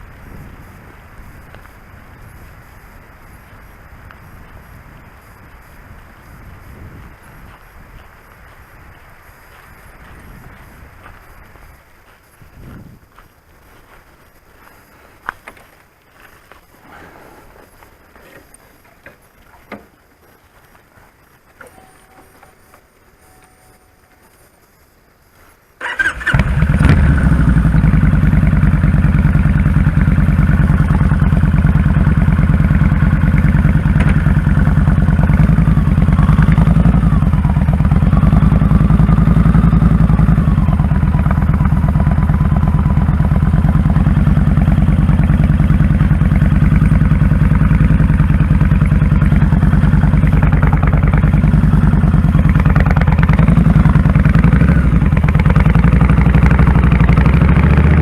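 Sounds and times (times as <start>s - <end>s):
motorcycle engine starting and idling: 25.8s - 58.0s.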